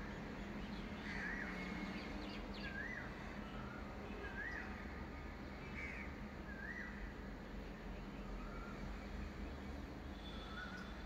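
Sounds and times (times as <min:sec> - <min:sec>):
faint bird chirps: 0:08.2 - 0:09.0, 0:10.1 - 0:11.0.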